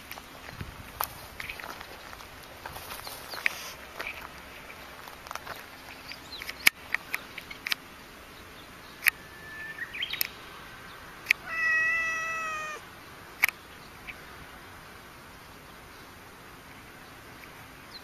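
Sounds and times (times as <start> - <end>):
cat meowing: 11.4 - 12.8
sharp clicks: 13.4 - 13.6.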